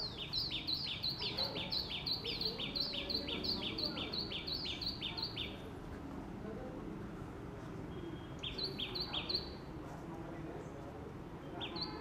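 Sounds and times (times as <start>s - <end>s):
bird chirping: 0.0s - 5.6s, 7.9s - 9.6s, 11.4s - 12.0s.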